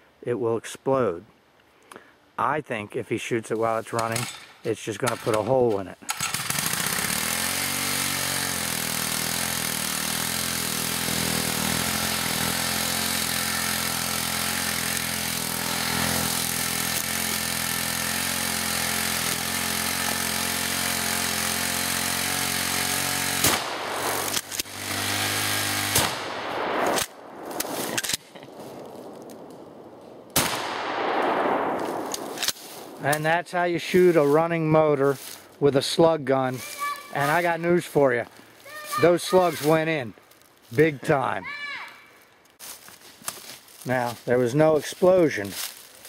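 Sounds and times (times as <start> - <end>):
small gasoline engine idling: 6.1 - 26.0
shotgun shots: 23.3 - 33.3.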